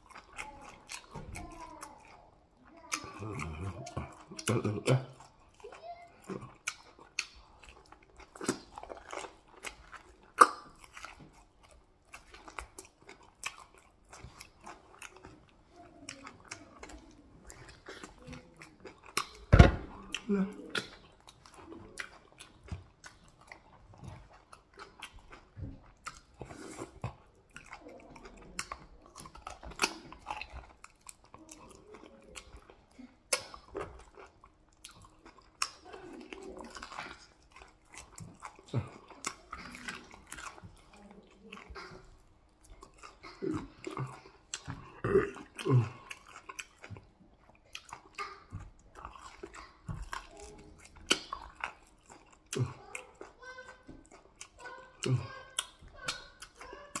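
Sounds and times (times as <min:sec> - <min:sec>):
close chewing and mouth smacks: 0:00.0 - 0:57.0.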